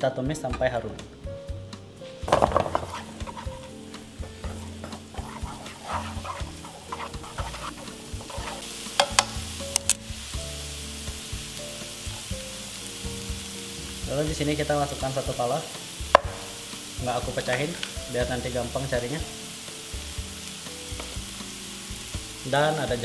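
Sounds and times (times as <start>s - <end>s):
onion and garlic sizzling in oil: 1.5s - 23.0s
chopsticks clicking and scraping pan: 2.3s - 10.0s, 17.4s - 18.0s.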